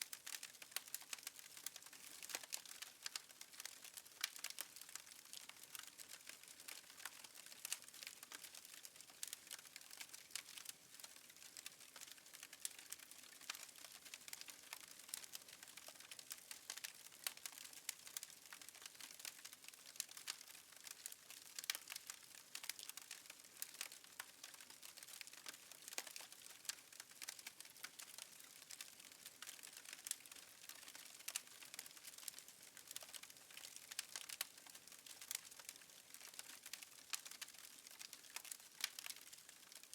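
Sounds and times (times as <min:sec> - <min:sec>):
fire crackling and popping: 0:00.1 - 0:39.9.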